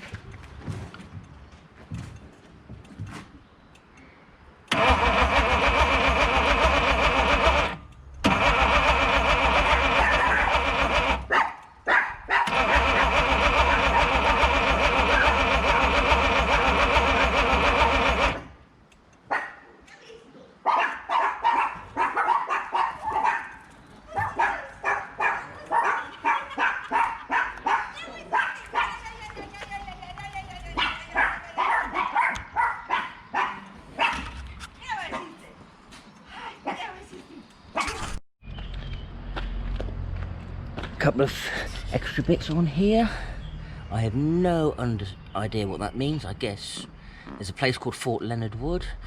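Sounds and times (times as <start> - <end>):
engine cranking on starter motor: 4.7 - 11.3, 12.5 - 18.6
dog barking: 11.3 - 12.6, 19.3 - 19.8, 20.6 - 23.6, 24.2 - 29.0, 30.8 - 34.4.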